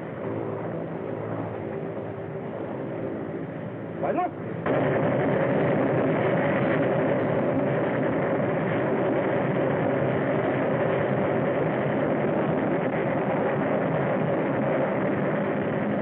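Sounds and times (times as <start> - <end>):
steady engine drone: 0.0 - 16.0.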